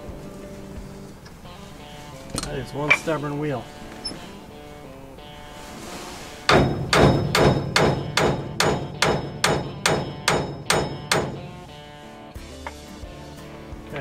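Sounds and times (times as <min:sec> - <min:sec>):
hammer blows on metal: 0:06.4 - 0:12.8.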